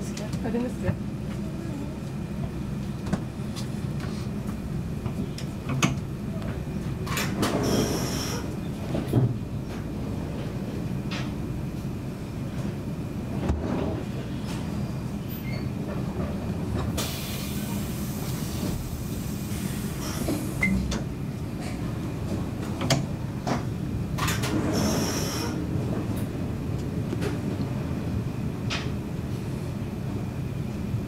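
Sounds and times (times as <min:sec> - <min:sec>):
train rumbling on tracks: 0:00.0 - 0:31.0
hiss: 0:07.6 - 0:08.5, 0:17.0 - 0:20.7, 0:24.8 - 0:25.6.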